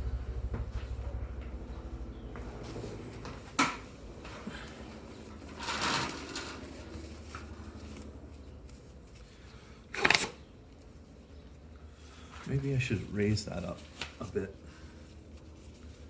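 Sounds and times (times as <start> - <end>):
low steady hum: 0.0 - 16.0
scraping rustle: 4.2 - 10.2.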